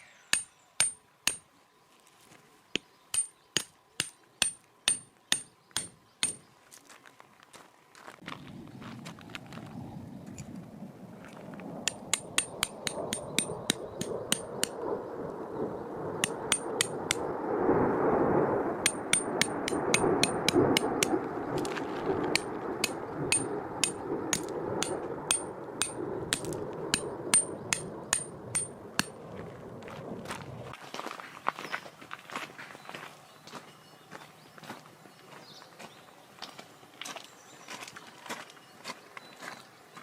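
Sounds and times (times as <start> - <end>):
hammer striking metal tent pegs: 0.3 - 1.5, 3.1 - 6.4, 11.9 - 14.8, 16.2 - 17.2, 18.9 - 21.1, 22.4 - 29.2.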